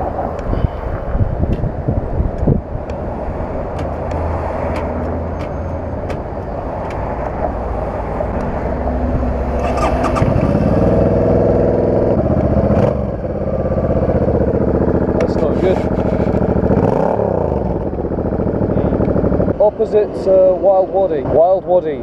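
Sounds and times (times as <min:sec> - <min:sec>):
higher engine note: 0:04.6 - 0:21.3
motorcycle engine idling: 0:09.6 - 0:20.0.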